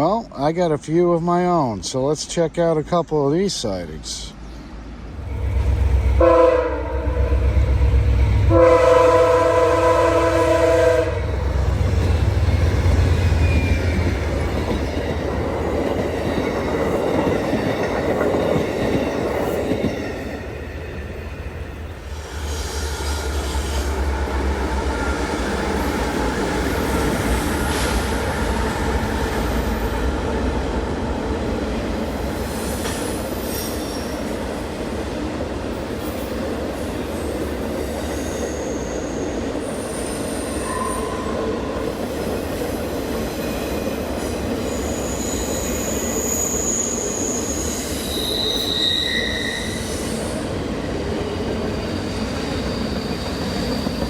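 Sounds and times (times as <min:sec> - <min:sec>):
train wheels rumbling on rail: 0:00.2 - 0:54.0
high-pitched wheel squeals: 0:38.1 - 0:41.4, 0:44.6 - 0:50.4.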